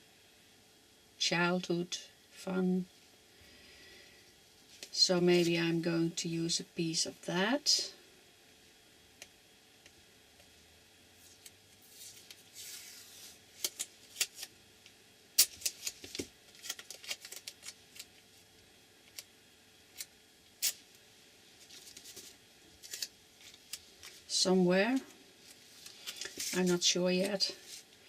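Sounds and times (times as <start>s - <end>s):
tape rustling: 15.4s - 18.2s, 21.6s - 24.2s, 25.0s - 27.9s.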